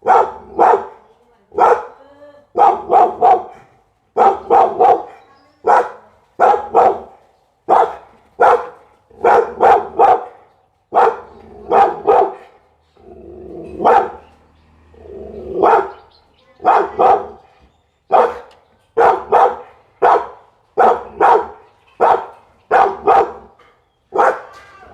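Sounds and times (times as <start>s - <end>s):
dog barking: 0.0s - 12.6s, 13.7s - 14.4s, 15.4s - 17.5s, 18.1s - 24.7s
low dog growl: 12.8s - 14.2s, 14.9s - 15.7s.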